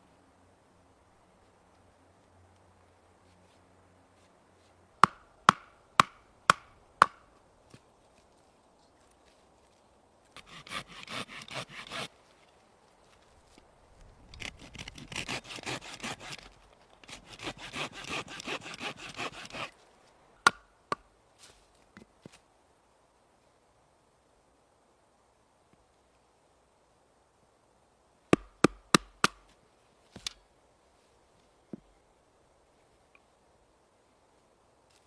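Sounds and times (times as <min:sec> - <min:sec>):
hand saw cutting wood: 0:10.4 - 0:12.1, 0:14.3 - 0:19.8.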